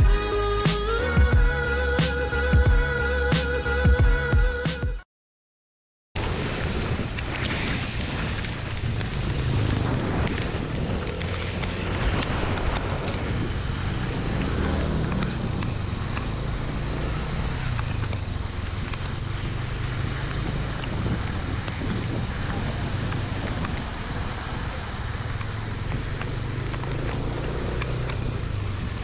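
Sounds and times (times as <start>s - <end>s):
wind noise on microphone: 6.2s - 27.2s
scooter engine running: 12.8s - 29.0s.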